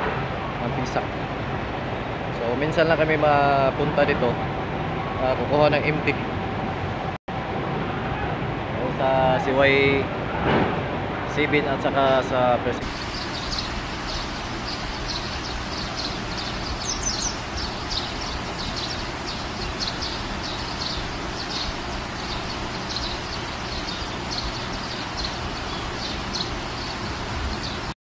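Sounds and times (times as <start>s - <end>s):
steady outdoor hiss: 0.0s - 28.0s
quick falling bird calls: 12.8s - 27.9s
birds chirping: 12.8s - 28.0s.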